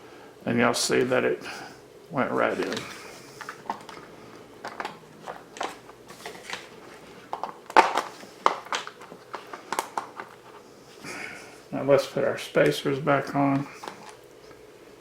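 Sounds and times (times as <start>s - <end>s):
plastic parts clicking and rustling: 2.5s - 10.6s, 13.5s - 14.2s.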